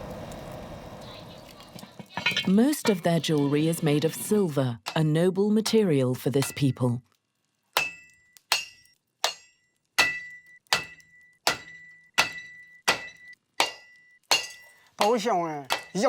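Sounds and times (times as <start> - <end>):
hammer striking metal: 7.8 - 16.0.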